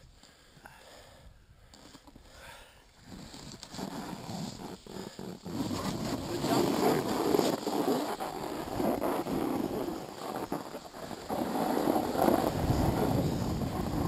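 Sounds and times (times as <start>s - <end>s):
snowboard carving over snow: 3.0s - 14.0s
wind on microphone: 10.8s - 14.0s.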